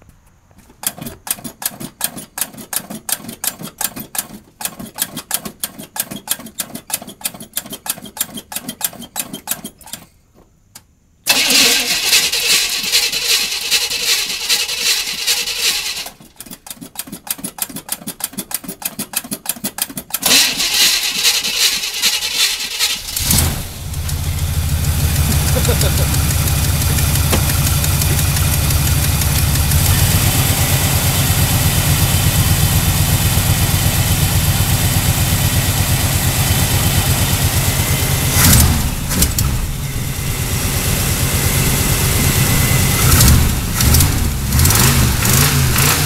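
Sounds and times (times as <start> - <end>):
engine cranking and starting: 11.3 - 33.3, 36.2 - 46.0.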